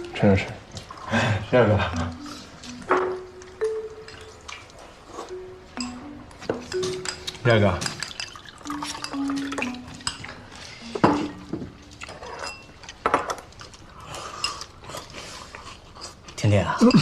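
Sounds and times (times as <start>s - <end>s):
utensils clinking against bowls: 5.8s - 15.2s.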